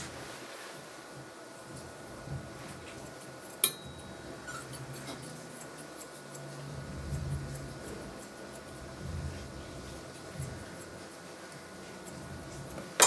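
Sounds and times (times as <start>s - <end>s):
shears snipping: 4.4s - 6.6s.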